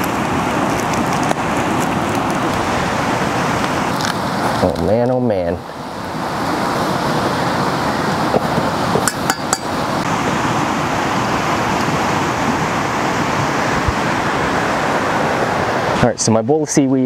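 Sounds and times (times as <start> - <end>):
steady rushing noise: 0.0 - 17.0
cookware clinking: 9.0 - 9.8.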